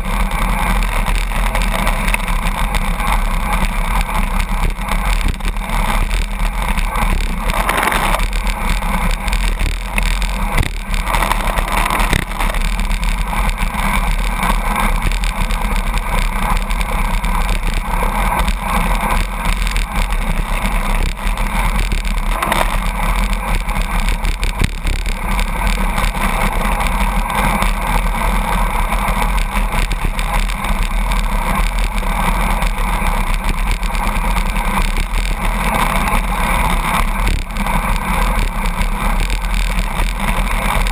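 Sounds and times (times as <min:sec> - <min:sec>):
rushing wind roar: 0:00.0 - 0:40.9
truck and road noise: 0:00.0 - 0:40.9.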